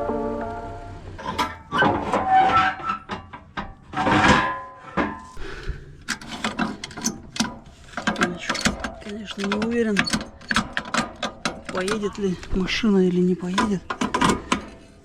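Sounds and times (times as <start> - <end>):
object handled clicking and scraping: 6.0 - 15.0.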